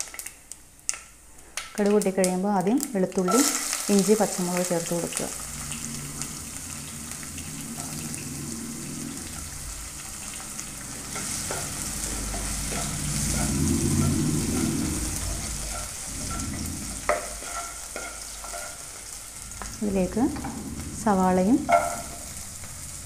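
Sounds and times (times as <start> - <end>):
food sizzling in oil: 0.0 - 23.0
spatula scraping pan: 3.3 - 23.0.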